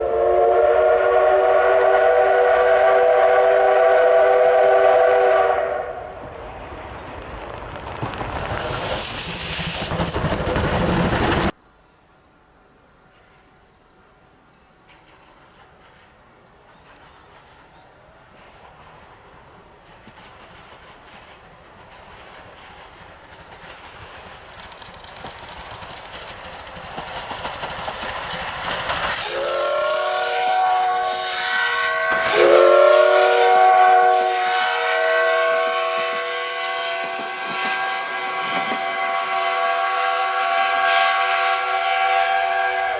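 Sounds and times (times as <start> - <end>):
steam whistle blast: 0.0 - 6.0, 29.1 - 42.9
steam hiss: 8.1 - 11.6, 17.0 - 42.9.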